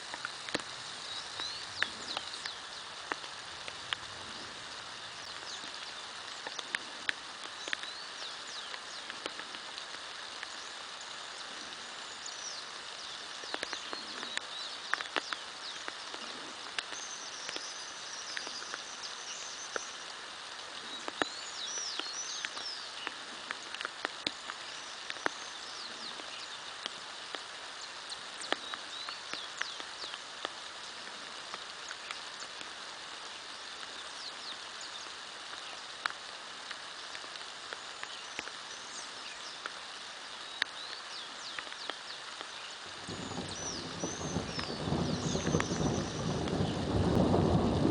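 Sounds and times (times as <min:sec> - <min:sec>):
raindrops tapping sharply: 0:00.0 - 0:38.8, 0:39.4 - 0:47.9
steady rain: 0:00.0 - 0:47.9
birds chirping and trilling: 0:00.4 - 0:03.2, 0:04.2 - 0:26.7, 0:40.4 - 0:47.7.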